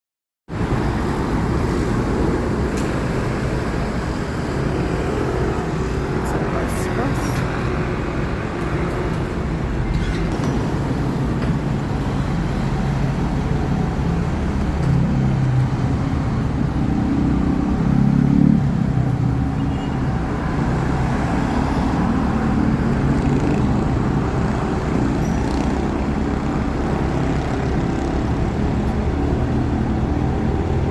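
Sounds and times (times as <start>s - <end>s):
traffic engine rumble: 0.5s - 30.9s.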